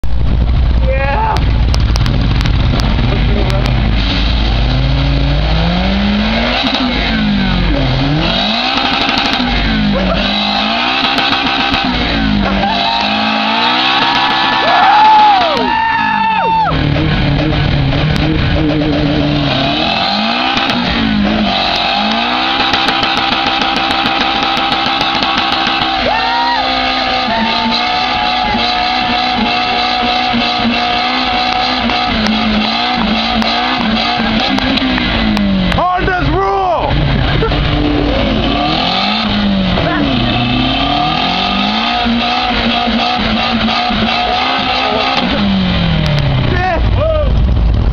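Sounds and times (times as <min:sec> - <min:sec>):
car engine revving hard: 0:01.4 - 0:47.9
tyres spinning: 0:01.7 - 0:36.3.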